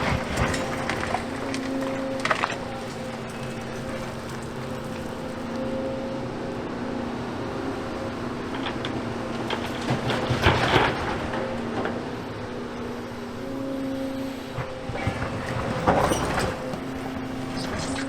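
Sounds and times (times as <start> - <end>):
rubble clattering: 0.0 - 5.7
excavator diesel engine humming: 0.0 - 18.0.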